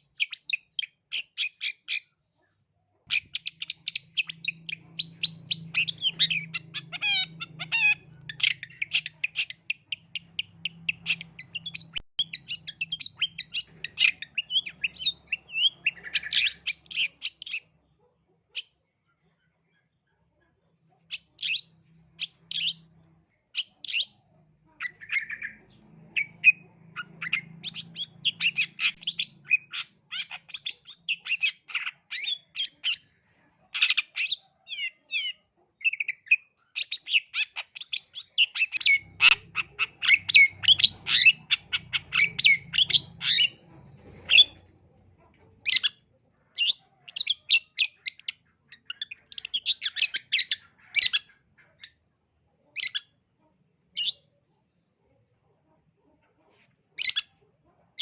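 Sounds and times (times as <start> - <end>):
shrike chattering song: 3.1 - 17.7, 23.6 - 33.2, 33.8 - 44.6.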